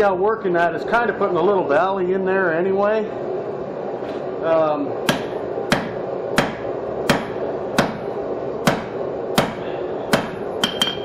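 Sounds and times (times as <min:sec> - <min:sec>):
hammer striking steel on anvil: 0:05.1 - 0:08.0, 0:08.6 - 0:11.0.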